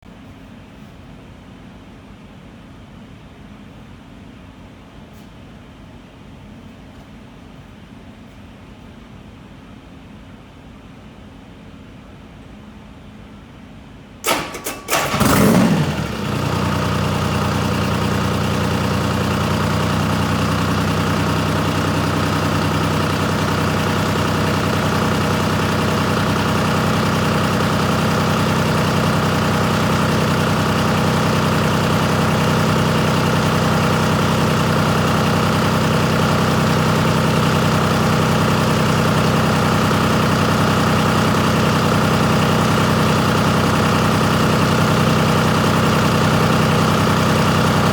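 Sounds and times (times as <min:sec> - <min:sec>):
diesel engine starting and idling: 0:14.2 - 0:47.9.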